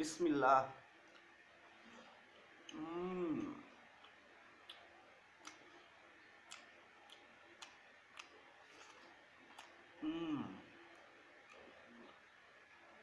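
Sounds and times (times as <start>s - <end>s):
mouth clicks and lip smacks: 4.0s - 5.9s, 6.5s - 9.8s.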